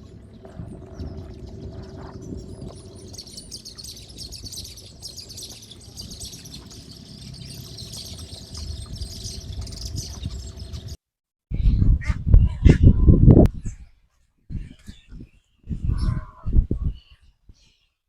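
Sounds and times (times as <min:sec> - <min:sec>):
faint low rumble: 0:00.0 - 0:13.6
small birds chirping: 0:00.0 - 0:18.0.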